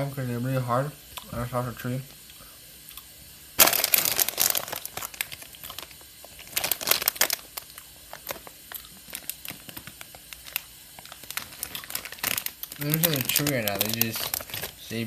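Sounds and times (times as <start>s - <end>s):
plastic bag crinkling: 3.6s - 15.0s.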